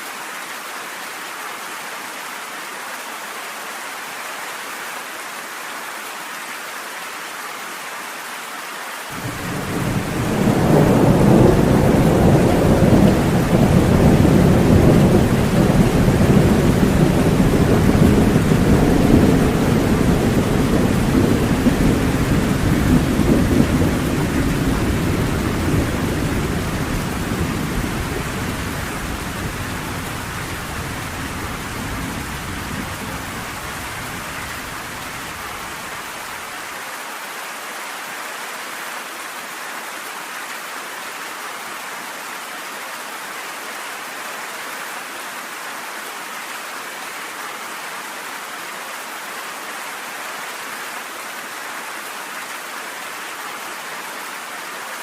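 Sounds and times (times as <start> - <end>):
steady rain: 0.0 - 55.0
thunder rumbling: 9.2 - 35.6.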